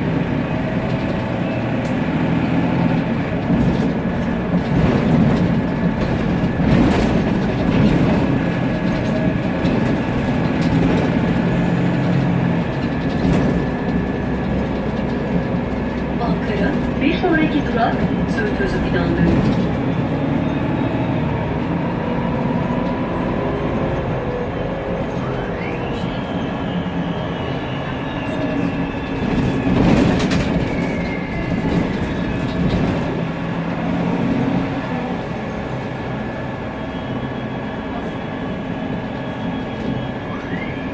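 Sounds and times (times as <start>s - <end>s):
bus engine running: 0.0s - 40.9s
rattling and clatter: 2.8s - 20.0s, 29.0s - 33.3s
gearbox whistling whine: 16.3s - 34.0s, 35.4s - 40.9s.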